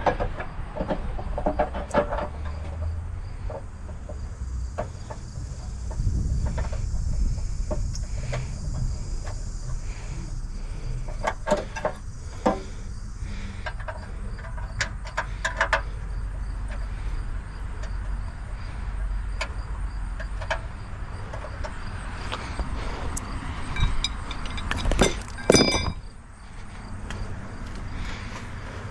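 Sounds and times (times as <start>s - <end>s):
steady low rumble: 3.1s - 28.6s
sharp clicks and clinks: 23.2s - 26.1s.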